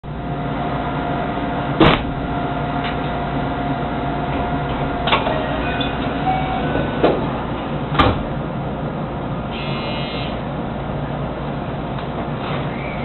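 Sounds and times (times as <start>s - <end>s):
train electrical hum: 0.0s - 13.0s.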